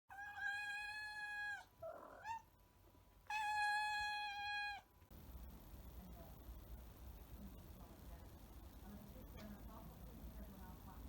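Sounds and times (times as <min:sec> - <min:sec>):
cat yowling: 0:00.1 - 0:02.5, 0:03.3 - 0:04.9.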